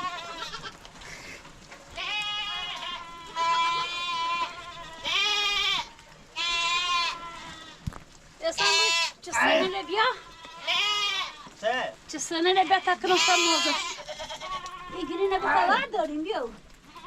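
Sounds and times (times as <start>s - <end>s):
livestock bleating: 0.0s - 0.8s, 1.9s - 7.8s, 8.4s - 11.8s, 12.5s - 16.0s.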